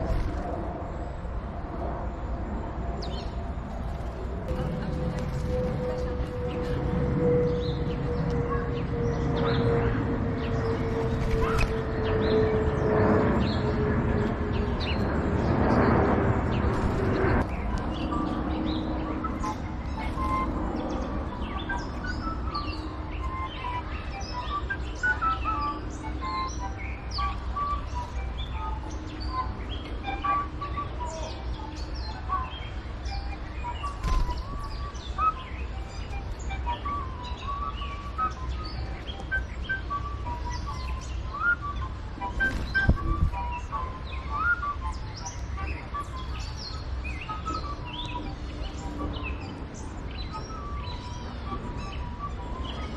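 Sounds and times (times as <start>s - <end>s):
steady hum dropping in pitch: 0.0s - 52.9s
small birds chirping: 3.0s - 52.9s.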